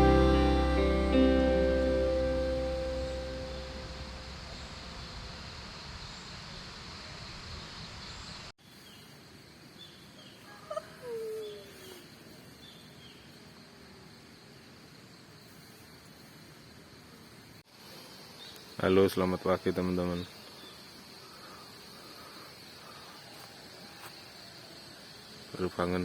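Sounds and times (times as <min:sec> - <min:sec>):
steady hiss: 0:00.0 - 0:10.5, 0:11.5 - 0:26.0
faint high bird chirps: 0:09.8 - 0:13.4.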